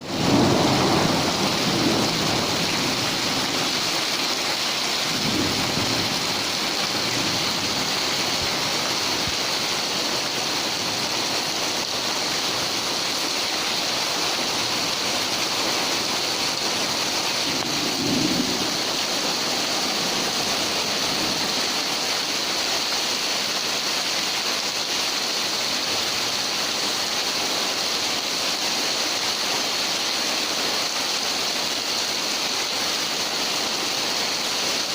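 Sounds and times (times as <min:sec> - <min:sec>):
heavy rain hissing: 0:00.0 - 0:34.9
thunder rumbling: 0:00.1 - 0:09.4, 0:17.0 - 0:21.8.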